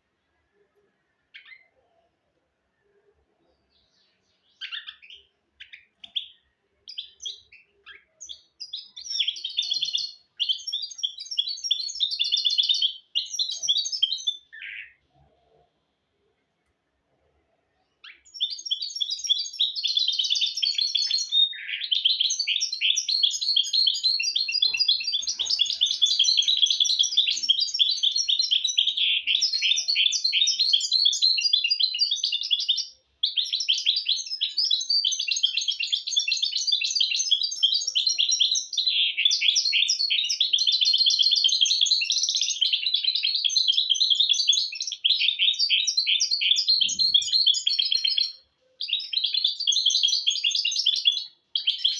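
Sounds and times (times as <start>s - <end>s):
finch singing trills and chirps: 1.2s - 2.1s, 3.6s - 15.1s, 17.8s - 51.9s.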